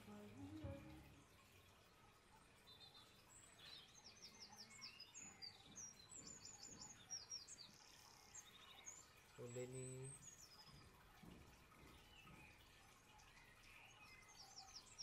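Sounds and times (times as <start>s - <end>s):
soft background hiss: 0.0s - 5.5s
birds chirping: 0.0s - 15.0s.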